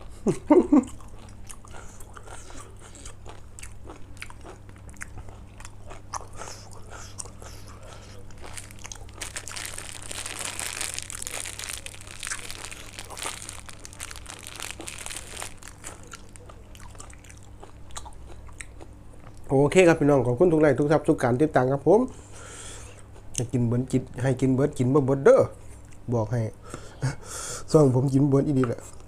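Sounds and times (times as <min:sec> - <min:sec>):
person chewing and crunching food: 0:00.7 - 0:19.5.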